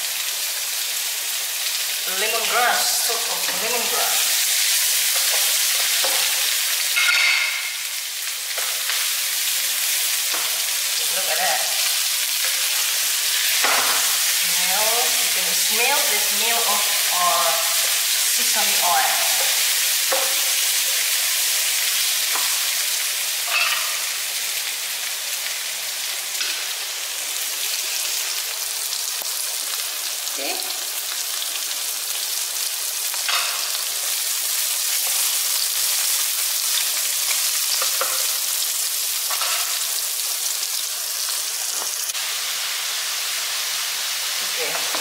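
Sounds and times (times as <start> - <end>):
vegetables sizzling in hot oil: 0.0 - 45.0.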